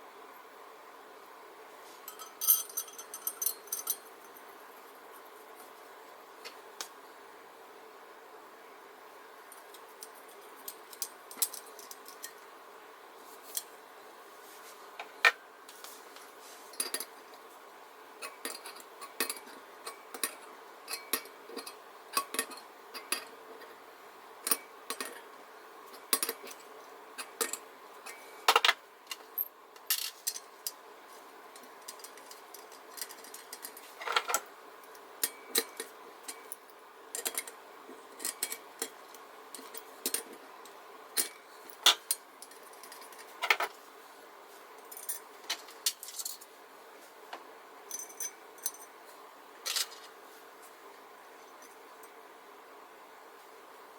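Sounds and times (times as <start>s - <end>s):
metal parts and tools clinking: 2.0s - 4.5s, 9.5s - 12.4s, 18.2s - 23.3s, 27.2s - 30.8s, 31.6s - 40.4s, 41.2s - 43.7s, 44.9s - 46.5s, 47.9s - 48.9s, 49.6s - 50.1s.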